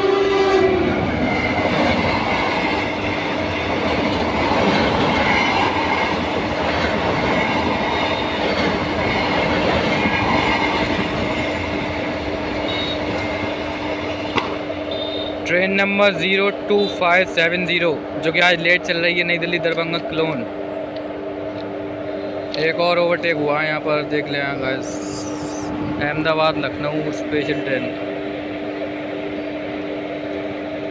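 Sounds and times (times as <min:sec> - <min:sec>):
train coaches rattling: 0:00.0 - 0:20.4
steady train hum: 0:00.0 - 0:30.9.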